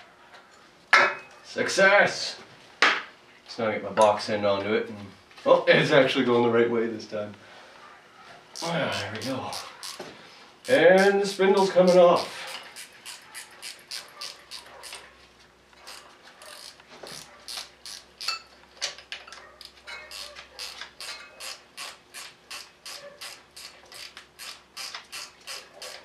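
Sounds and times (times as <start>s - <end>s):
ratcheting wrench clicking: 8.6s - 10.0s, 10.6s - 15.0s, 15.9s - 18.4s, 20.1s - 26.0s.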